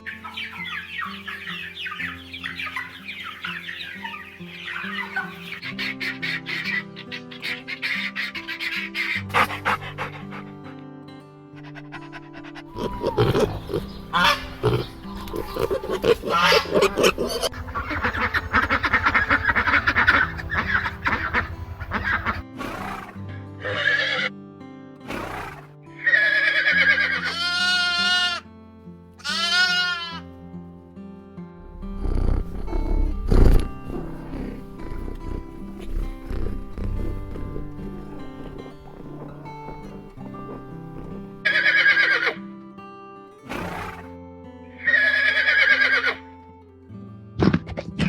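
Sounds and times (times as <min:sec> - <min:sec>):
music with held notes: 0:00.0 - 0:22.6, 0:28.3 - 0:43.5
goats bleating: 0:12.7 - 0:22.5, 0:26.1 - 0:28.4, 0:29.2 - 0:30.3, 0:31.6 - 0:42.4, 0:44.8 - 0:46.2
horse whinnying: 0:12.7 - 0:24.3, 0:25.1 - 0:28.4, 0:31.9 - 0:42.4, 0:43.5 - 0:44.1, 0:44.8 - 0:46.2.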